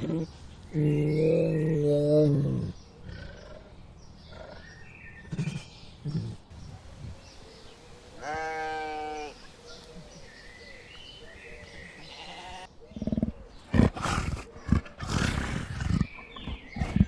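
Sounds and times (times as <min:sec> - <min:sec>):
animal call: 0:06.6 - 0:13.3.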